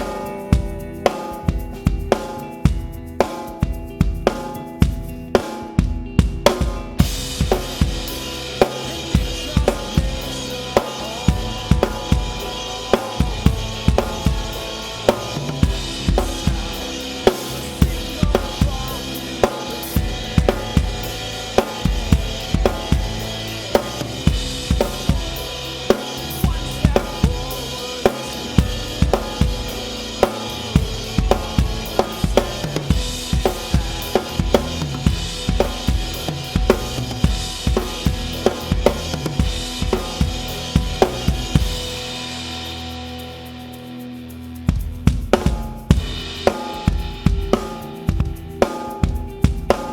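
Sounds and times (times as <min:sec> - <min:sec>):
drum kit rock groove: 0:00.0 - 0:49.9.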